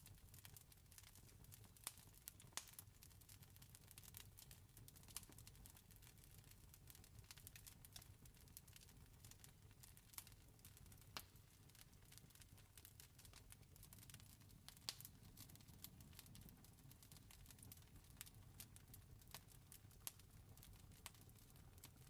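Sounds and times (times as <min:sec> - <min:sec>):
campfire crackling: 0:00.1 - 0:22.0.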